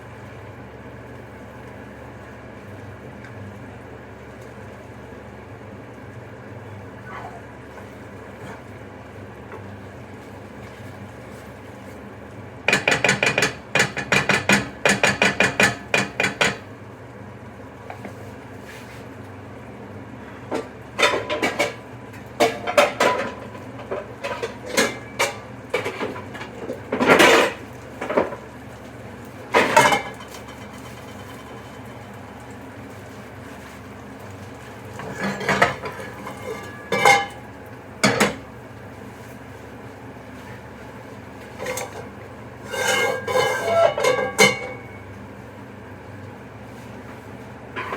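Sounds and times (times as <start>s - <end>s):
steady background hum: 0.0s - 47.9s
utensils clattering against dishes: 12.7s - 16.6s, 21.0s - 21.8s, 22.4s - 28.4s, 29.6s - 32.1s, 34.9s - 37.4s, 38.0s - 38.4s, 41.5s - 45.1s.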